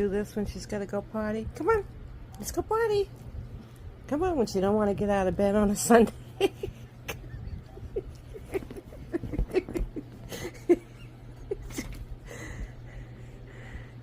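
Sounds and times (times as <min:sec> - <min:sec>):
bedding rustling: 0:05.3 - 0:13.2.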